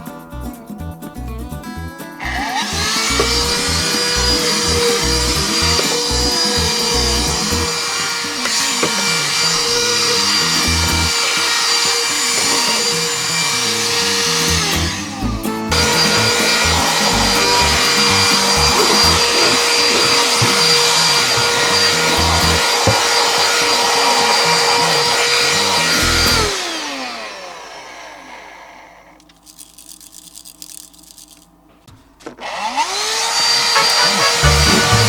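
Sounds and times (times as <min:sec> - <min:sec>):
handheld vacuum cleaner whine: 0:02.2 - 0:29.2, 0:32.4 - 0:35.0.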